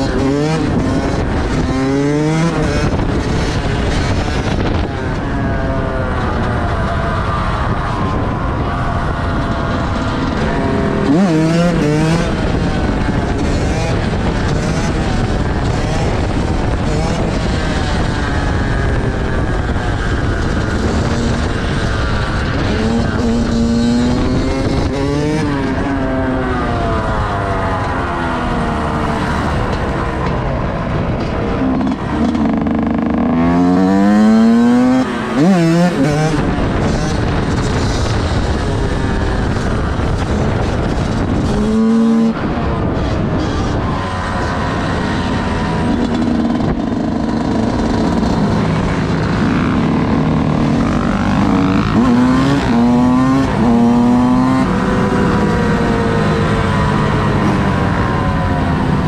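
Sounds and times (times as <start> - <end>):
vehicle engines revving: 0.0 - 59.0.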